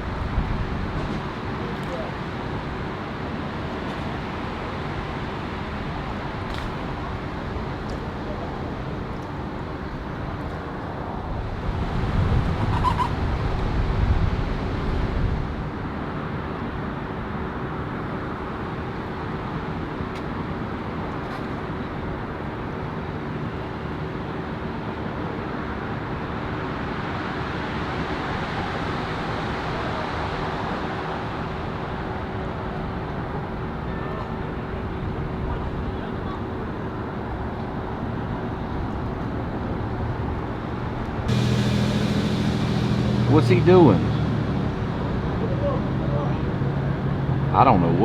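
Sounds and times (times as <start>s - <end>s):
vehicle and engine hum: 0.0s - 48.0s
low rumble: 40.8s - 47.8s.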